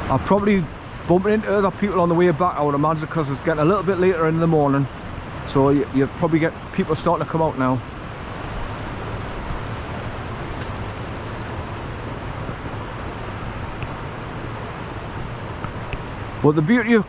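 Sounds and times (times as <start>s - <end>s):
waterfall and stream rushing: 0.0s - 17.0s.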